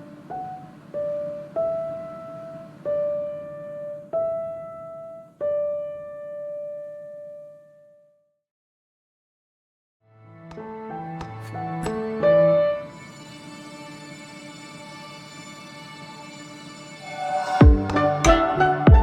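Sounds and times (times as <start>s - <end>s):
slow piano notes: 0.0s - 8.1s, 10.4s - 14.3s.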